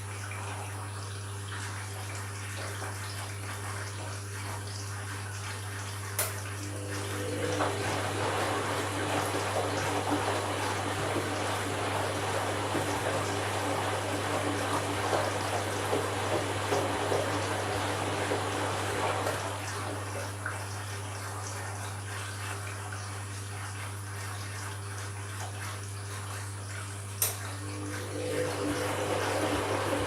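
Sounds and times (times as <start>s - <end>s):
water rushing through washing machine: 0.0s - 30.0s
low machine hum: 6.1s - 24.3s, 25.6s - 30.0s.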